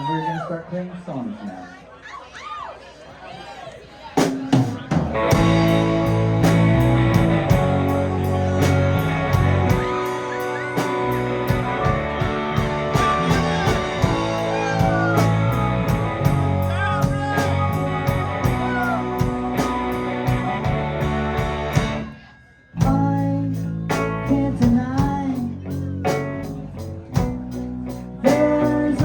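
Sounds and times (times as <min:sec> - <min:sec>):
bass: 0:04.2 - 0:29.0
drum kit with cymbal beat: 0:04.2 - 0:29.0
keyboards: 0:04.6 - 0:29.0
electric guitar: 0:05.1 - 0:22.2
gliding lead notes: 0:05.3 - 0:22.2.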